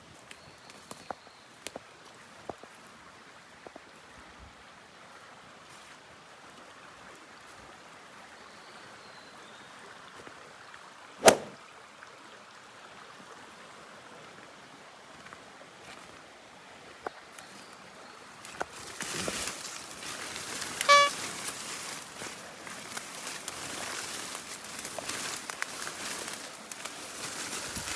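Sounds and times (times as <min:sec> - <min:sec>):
sharp click: 0:11.2 - 0:11.6
rustling: 0:18.6 - 0:27.9
short call-like tone: 0:20.8 - 0:21.2.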